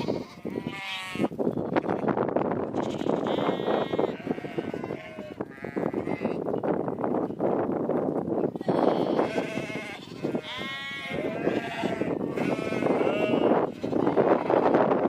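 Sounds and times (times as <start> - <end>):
sheep bleating: 0.0 - 2.1, 2.7 - 6.4, 8.6 - 14.7.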